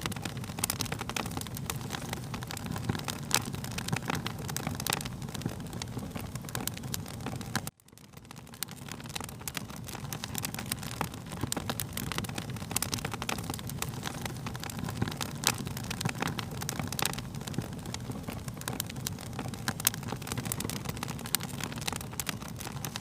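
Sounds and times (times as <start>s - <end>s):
fire crackles and pops: 0.0s - 23.0s
low rumble of flames: 0.0s - 23.0s.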